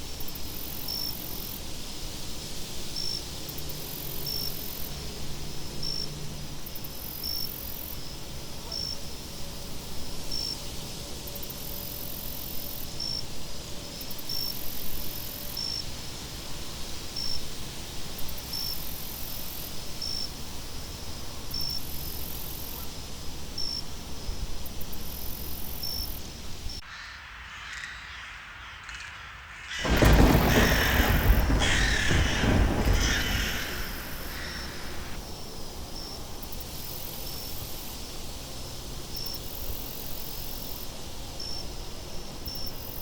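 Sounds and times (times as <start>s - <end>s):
wind: 0.0s - 43.0s
insects chirping: 25.0s - 40.8s
crow cawing: 26.8s - 35.2s.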